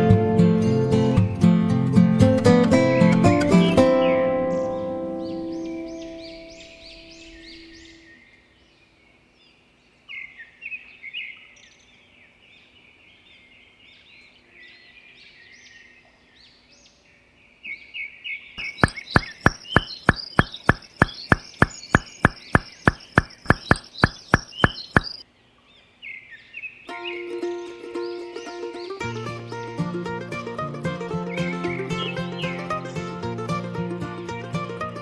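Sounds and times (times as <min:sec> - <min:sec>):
small birds chirping: 0:03.6 - 0:30.5, 0:31.2 - 0:33.4
fast sharp knocks: 0:18.6 - 0:25.2.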